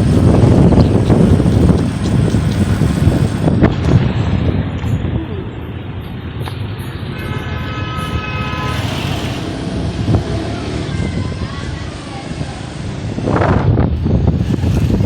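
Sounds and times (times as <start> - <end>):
street traffic: 0.0 - 15.0
vehicle horn: 7.1 - 9.6.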